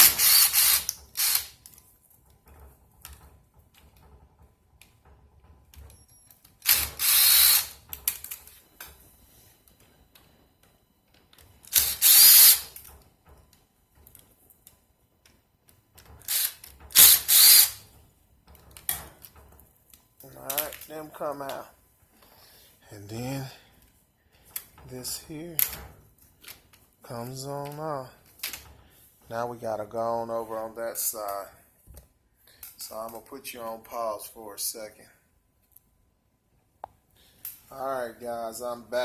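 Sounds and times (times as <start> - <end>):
power drill-driver running: 0.0 - 1.6, 6.6 - 7.8, 11.7 - 12.8, 16.3 - 17.8.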